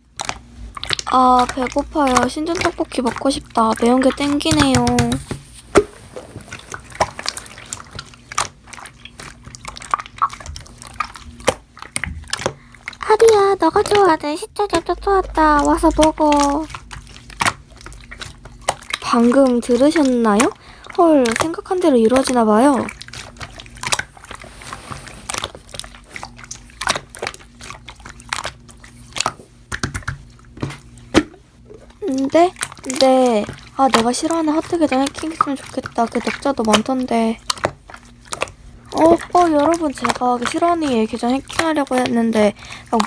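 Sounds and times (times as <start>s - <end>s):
slime squished by hand: 0.0s - 43.0s
slime wet clicks and pops: 28.3s - 31.4s.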